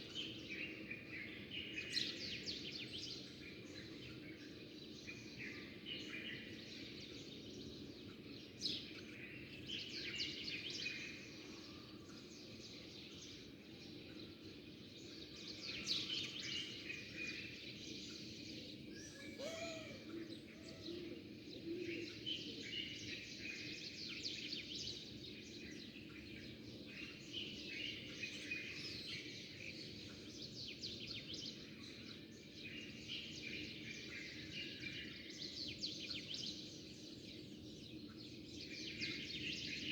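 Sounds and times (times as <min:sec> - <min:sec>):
small birds chirping: 0:12.6 - 0:39.9.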